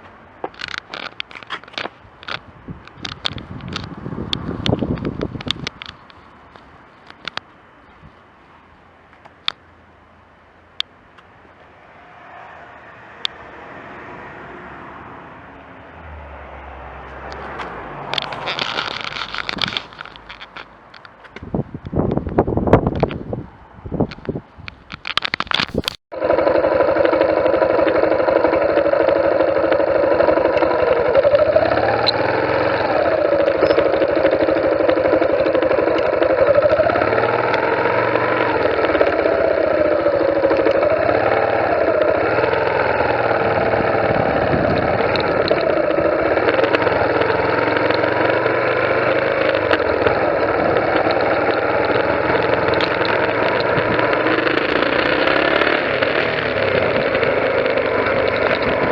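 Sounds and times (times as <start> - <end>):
motorcycle engine running: 25.6 - 58.9.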